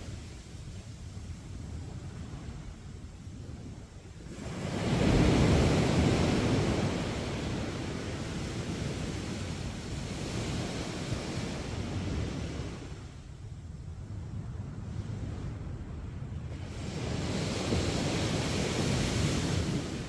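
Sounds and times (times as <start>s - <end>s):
sea waves crashing on beach: 4.2s - 13.3s, 16.5s - 20.0s.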